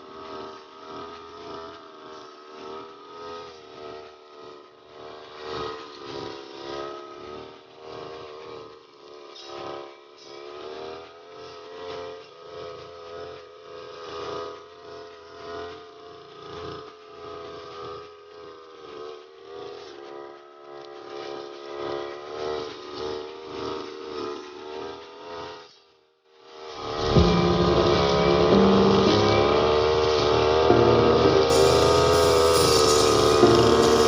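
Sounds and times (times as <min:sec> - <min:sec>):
brush cutter engine cutting grass: 0:00.0 - 0:25.8, 0:26.4 - 0:34.0.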